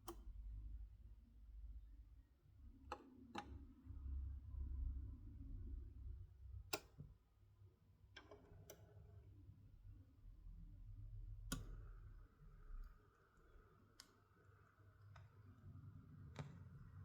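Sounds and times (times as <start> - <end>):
quiet low hum: 0.0 - 17.0
turntable mechanical clicks: 11.4 - 12.1.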